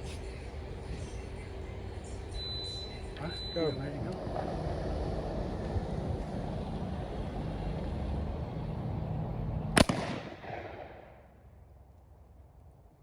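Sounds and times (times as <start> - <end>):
muzzleloader gunshot with echo: 9.8 - 11.4.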